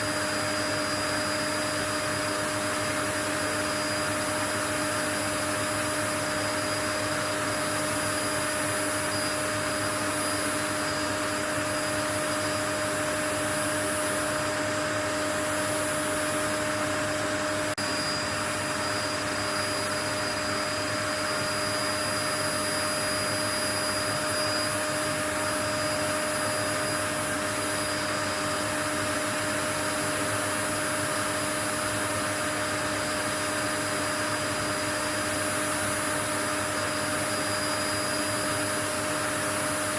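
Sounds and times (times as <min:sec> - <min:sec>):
thin high whine: 0:00.0 - 0:29.7
motor-like hum: 0:00.0 - 0:39.9.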